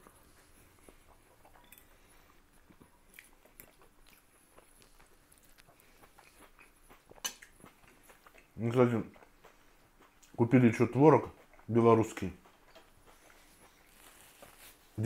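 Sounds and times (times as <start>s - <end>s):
man chewing: 0.0s - 15.0s.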